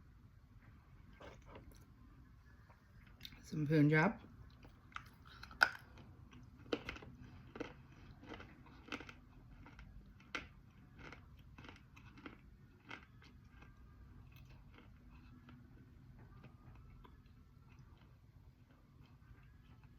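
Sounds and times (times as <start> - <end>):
crunchy chewing: 4.4 - 19.9.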